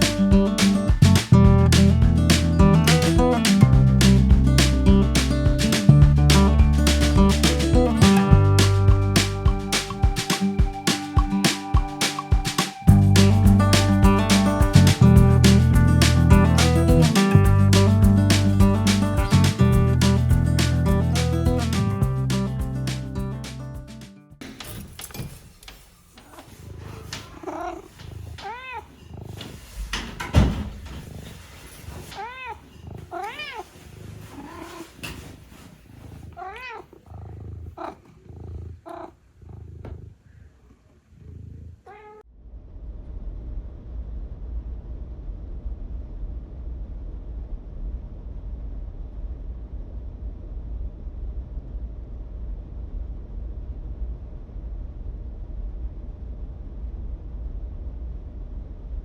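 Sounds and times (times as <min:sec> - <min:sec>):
steady low rumble: 0:00.0 - 0:12.0, 0:12.9 - 0:23.9, 0:41.2 - 0:59.0
cat meowing: 0:26.3 - 0:29.3, 0:32.1 - 0:34.9, 0:36.3 - 0:37.1, 0:37.8 - 0:38.0, 0:38.9 - 0:39.2, 0:41.9 - 0:42.2.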